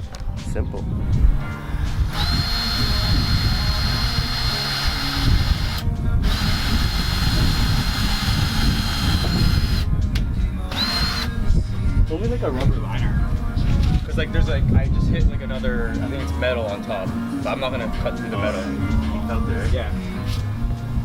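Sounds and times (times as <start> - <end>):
power drill drilling: 2.1 - 9.9, 10.7 - 11.4.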